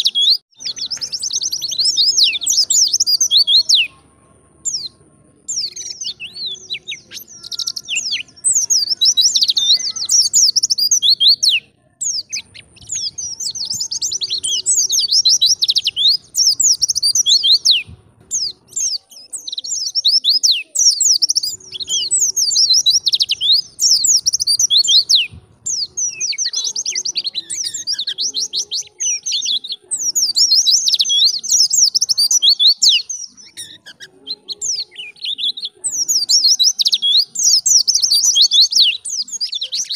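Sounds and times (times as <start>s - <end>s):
white-eye bird chattering song: 0.0s - 39.9s.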